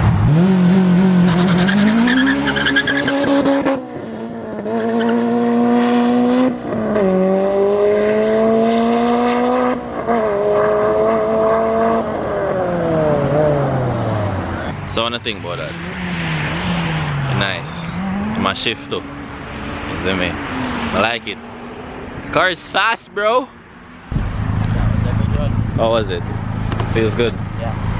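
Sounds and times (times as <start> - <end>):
race car engine accelerating: 0.0 - 14.8, 15.6 - 22.0.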